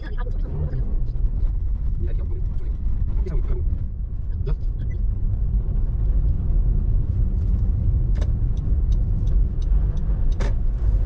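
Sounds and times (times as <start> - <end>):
low rumble of tyres on road: 0.0 - 11.0.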